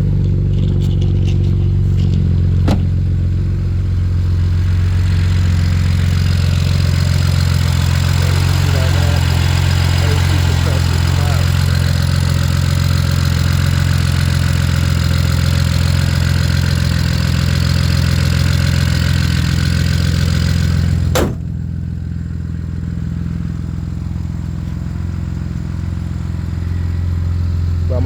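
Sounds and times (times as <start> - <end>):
car engine idling: 0.0 - 28.0
sharp bang: 21.1 - 21.6.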